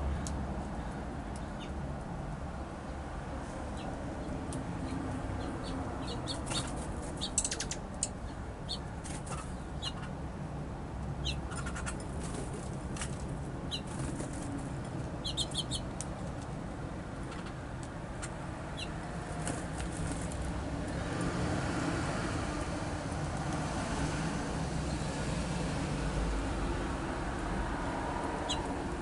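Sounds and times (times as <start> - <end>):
songbirds chirping: 2.5 - 10.2, 11.0 - 21.0, 28.2 - 29.0.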